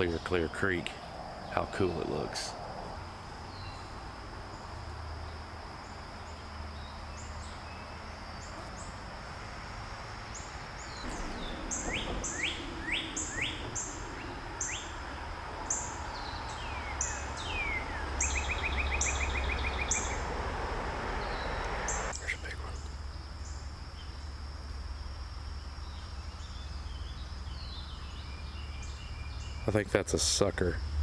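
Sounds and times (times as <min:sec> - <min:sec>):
insect drone: 0:00.0 - 0:31.0
outdoor background hiss: 0:00.0 - 0:31.0
songbirds chirping: 0:00.0 - 0:31.0.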